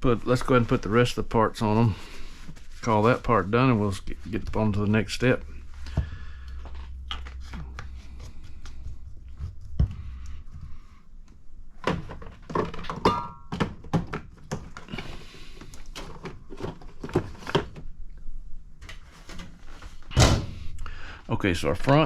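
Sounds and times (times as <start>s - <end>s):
low hum: 2.0s - 12.5s.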